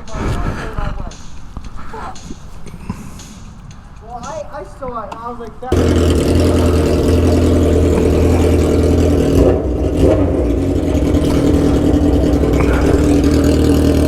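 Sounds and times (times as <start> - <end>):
motorcycle engine idling: 5.7 - 14.0.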